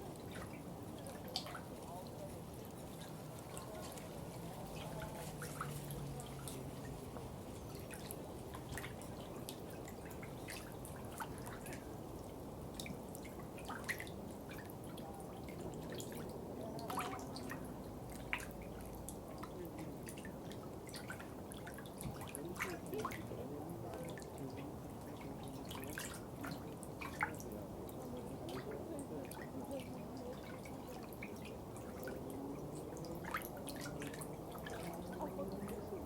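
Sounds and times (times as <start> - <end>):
low wash of water: 0.0 - 36.0.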